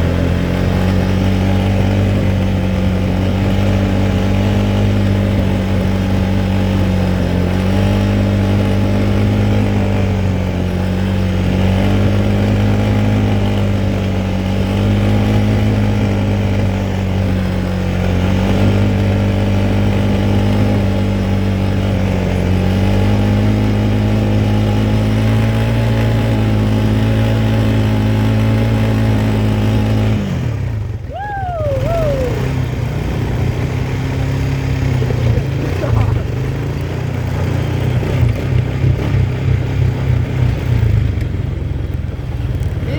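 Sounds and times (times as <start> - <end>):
quad bike engine running: 0.0 - 42.9.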